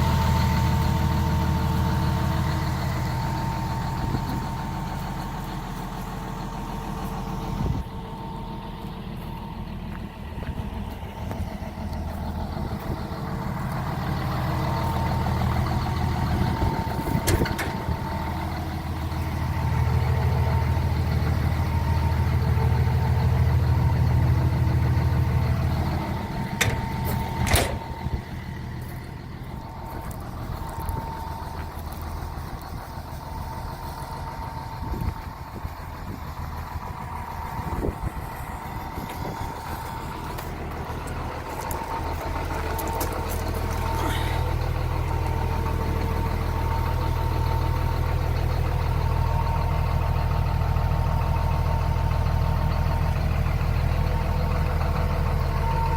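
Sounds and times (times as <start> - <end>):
excavator diesel engine with whine: 0.0 - 55.9.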